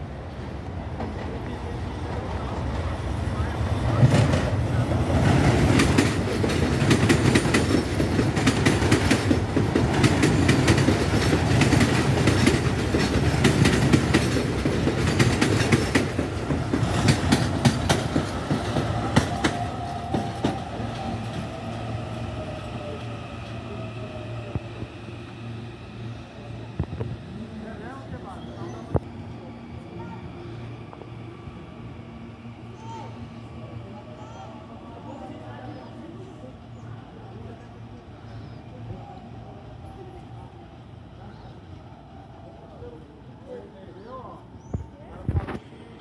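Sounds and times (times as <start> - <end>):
train rumbling past: 0.0 - 46.0
wheels clacking over rail joints: 3.9 - 21.4.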